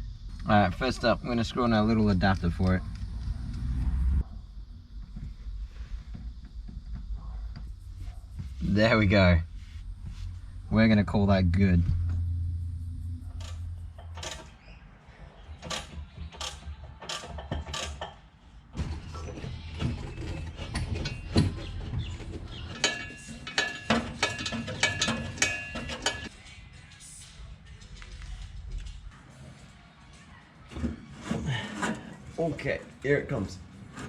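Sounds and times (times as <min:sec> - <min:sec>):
low hum: 0:00.0 - 0:16.3
metal clicks and clinks: 0:22.8 - 0:26.3.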